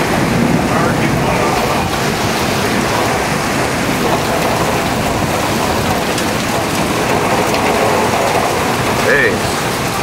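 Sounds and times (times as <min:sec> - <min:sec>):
heavy wind-driven rain: 0:00.0 - 0:10.0.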